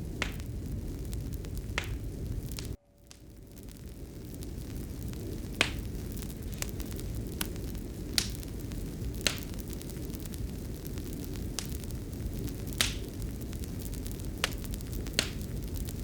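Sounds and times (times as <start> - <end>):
fire popping: 0.0 - 16.0
low rumble of fire: 0.0 - 16.0.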